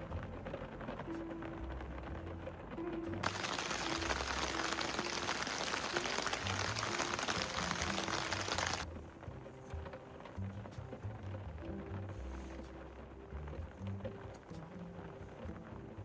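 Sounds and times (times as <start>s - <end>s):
heavy rain hissing: 0.0s - 9.5s
soft background music: 0.0s - 16.0s.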